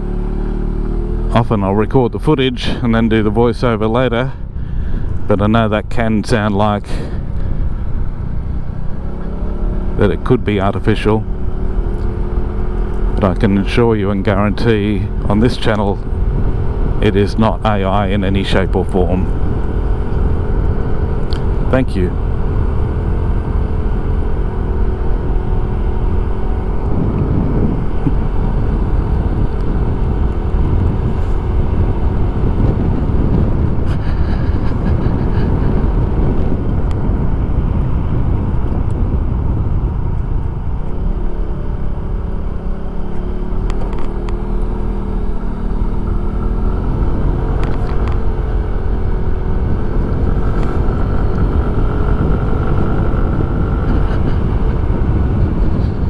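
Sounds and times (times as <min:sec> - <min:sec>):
scooter engine running: 0:00.0 - 0:02.8, 0:07.1 - 0:56.0
wind noise on microphone: 0:14.2 - 0:43.0, 0:43.6 - 0:56.0.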